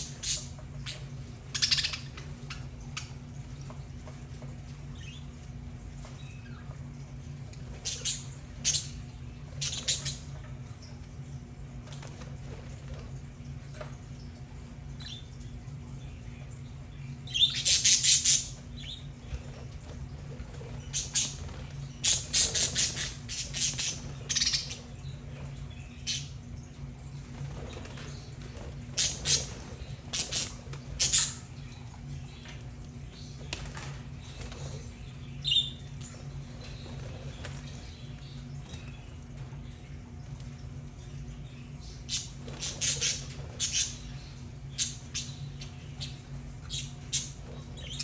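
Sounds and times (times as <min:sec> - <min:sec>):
budgerigars chirping and squawking: 0:00.0 - 0:03.2, 0:07.5 - 0:10.5, 0:17.2 - 0:26.4, 0:27.4 - 0:32.5, 0:41.8 - 0:48.0
steady low hum: 0:00.0 - 0:48.0.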